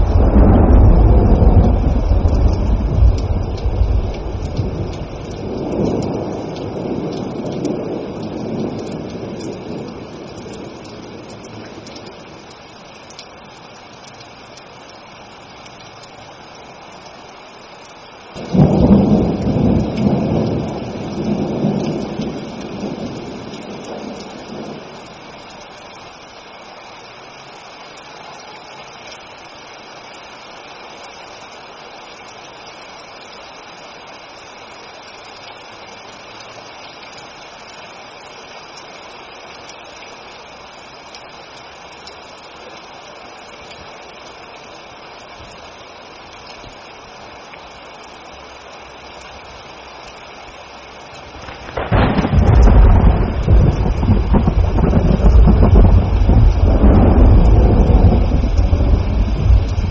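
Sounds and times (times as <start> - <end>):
thunder clap rumbling: 0.0 - 12.2, 18.4 - 25.3, 51.2 - 59.9
rain falling: 0.0 - 59.9.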